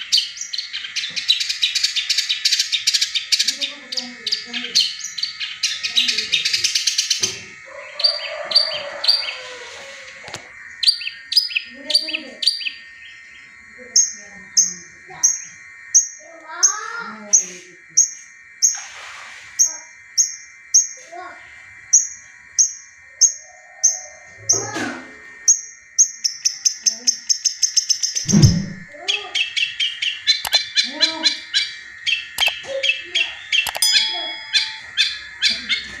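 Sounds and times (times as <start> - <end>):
loud low thud: 28.3 - 28.9
shrike singing sharp notes: 28.3 - 28.9, 33.7 - 34.9
bird giving sharp calls: 30.1 - 36.0
high ringing tone: 33.7 - 35.7.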